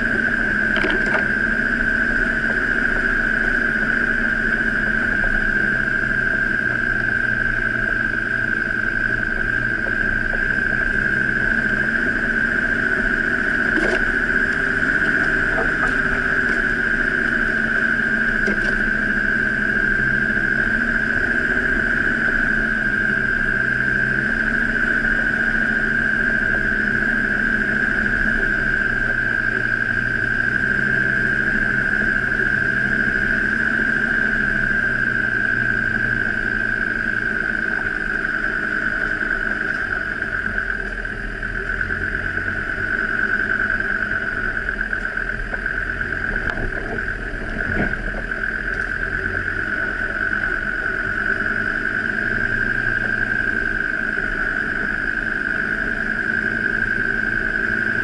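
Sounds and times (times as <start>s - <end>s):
steady high whine: 0.0s - 58.0s
vehicle engine running: 0.0s - 58.0s.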